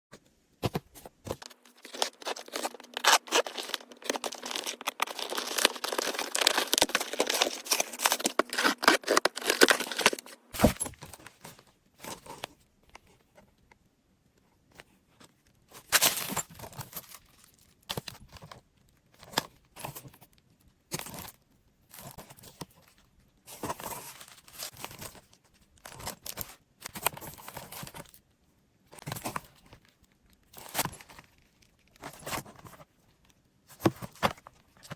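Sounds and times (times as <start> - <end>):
package rustling and clicking: 0.6 - 11.2
packaging tearing and crinkling: 1.4 - 10.8.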